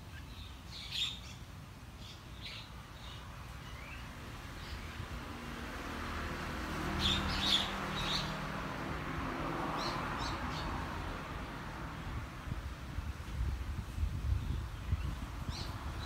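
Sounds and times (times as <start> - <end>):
small birds chirping: 0.0 - 5.4, 6.9 - 8.5, 14.0 - 16.0
passing vehicle engine hum: 3.8 - 14.2.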